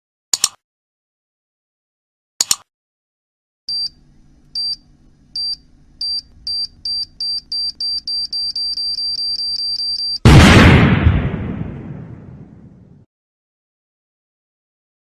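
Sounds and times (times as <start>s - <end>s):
low hum: 3.7s - 10.6s
high electronic beeps: 5.4s - 10.2s
loud explosion: 10.2s - 13.0s.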